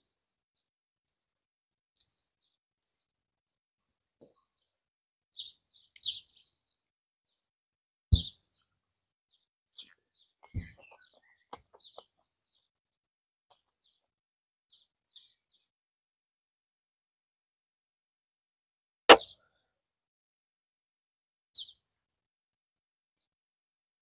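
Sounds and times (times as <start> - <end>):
small birds chirping: 2.0 - 3.2, 3.8 - 7.5, 8.1 - 12.8, 13.5 - 14.1, 14.7 - 15.7, 21.6 - 22.0.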